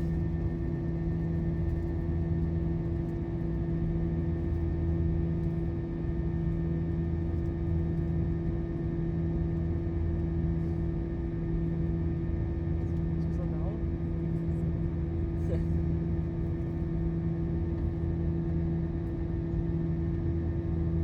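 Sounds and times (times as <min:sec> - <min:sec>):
airplane cabin drone: 0:00.0 - 0:21.0.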